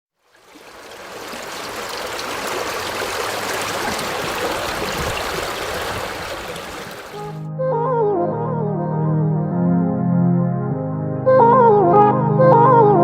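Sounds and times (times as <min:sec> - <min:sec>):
stream water rushing: 0:00.2 - 0:07.4.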